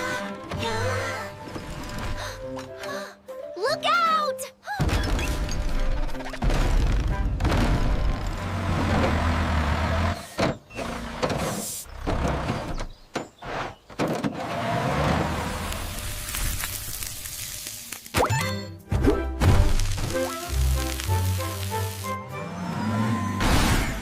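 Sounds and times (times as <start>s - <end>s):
background music: 0.0s - 10.2s, 17.2s - 24.0s
engine rumbling: 7.2s - 16.4s.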